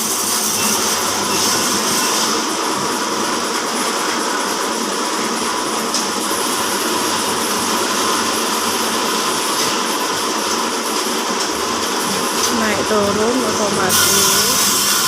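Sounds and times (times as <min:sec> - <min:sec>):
band sawmill running: 0:00.0 - 0:15.0.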